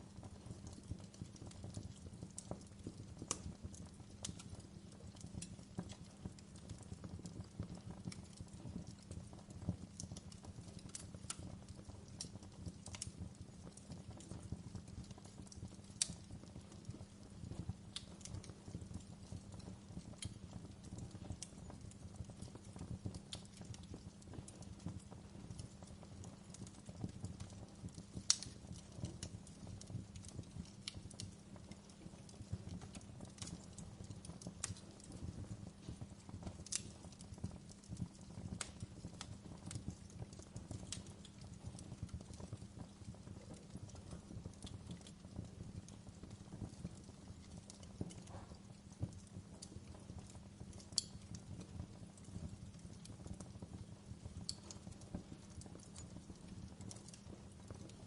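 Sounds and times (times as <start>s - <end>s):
low rumble of flames: 0.0s - 58.0s
wood fire pops and snaps: 0.0s - 58.0s
loud fire pops: 17.7s - 29.6s, 50.8s - 51.5s.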